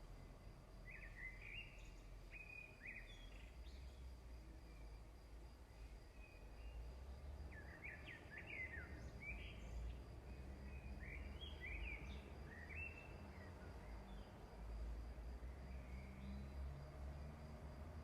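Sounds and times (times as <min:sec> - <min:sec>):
small bird singing: 0:00.8 - 0:04.1, 0:07.5 - 0:14.4.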